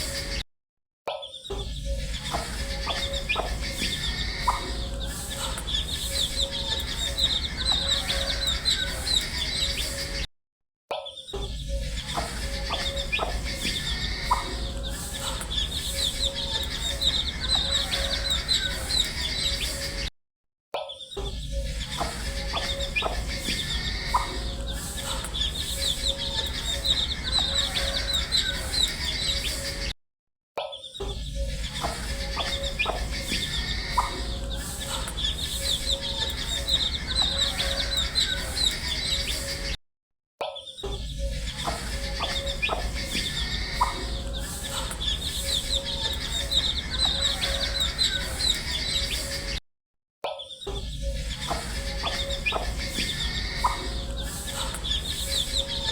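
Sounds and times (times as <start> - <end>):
steady low hum: 1.8 - 9.8, 11.7 - 19.4, 21.6 - 29.2, 31.3 - 39.1
baby chicks peeping: 1.8 - 10.2, 11.6 - 20.1, 21.5 - 29.9, 31.4 - 39.7, 41.1 - 49.6, 50.6 - 55.9.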